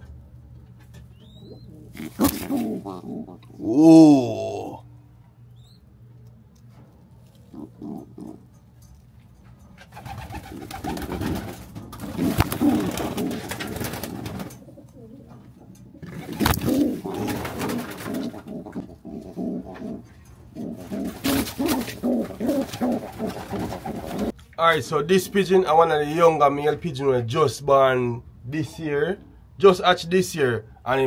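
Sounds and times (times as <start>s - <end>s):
pigeons cooing: 0.9s - 4.8s, 7.3s - 8.6s, 9.9s - 24.4s.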